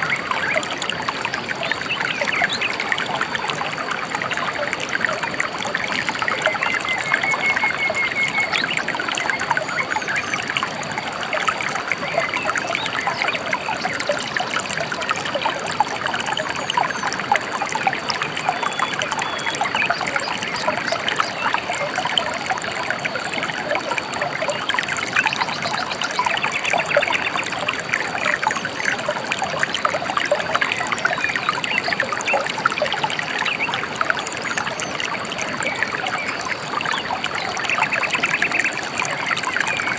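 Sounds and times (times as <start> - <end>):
river babbling: 0.0 - 39.9
faint bird whistle: 6.4 - 10.5.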